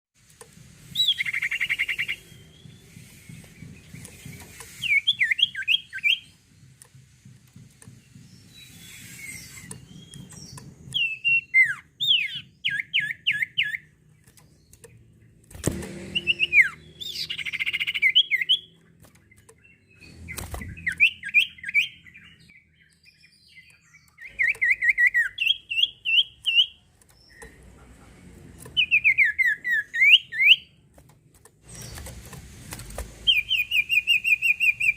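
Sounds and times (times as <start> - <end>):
songbird whistling and trilling: 0.9 - 6.4, 8.2 - 13.9, 16.2 - 18.8, 19.6 - 27.4, 28.8 - 30.8, 33.2 - 34.9.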